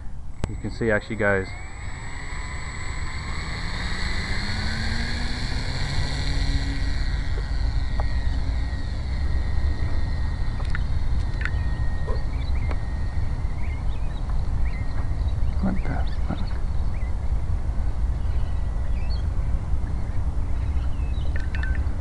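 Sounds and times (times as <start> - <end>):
heavy low rumble: 0.0 - 21.1
model plane electric motor whining: 0.3 - 15.5.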